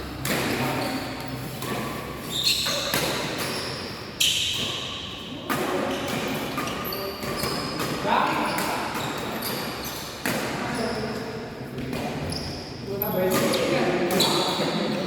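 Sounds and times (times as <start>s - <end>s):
shoes squeaking on court: 0.2s - 11.2s, 11.9s - 14.9s
rackets hitting shuttlecock: 1.5s - 3.8s, 5.4s - 10.6s.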